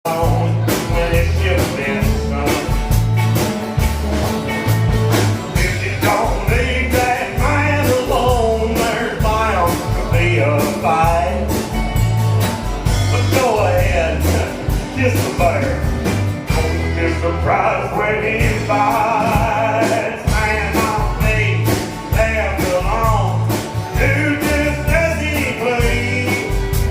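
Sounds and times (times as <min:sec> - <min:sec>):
bass line: 0:00.0 - 0:26.9
drums: 0:00.0 - 0:26.9
bending lead melody: 0:00.1 - 0:26.9.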